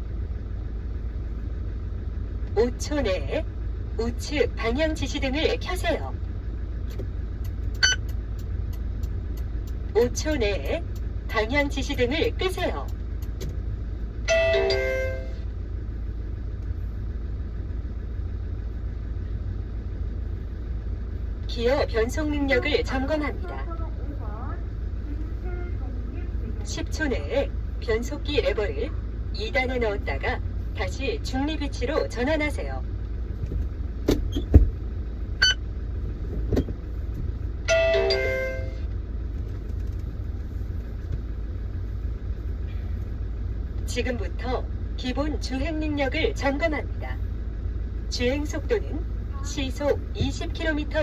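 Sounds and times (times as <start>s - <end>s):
car engine idling: 0.0s - 51.0s
gear lever clunks: 33.4s - 34.8s
short electronic chime: 37.7s - 38.8s.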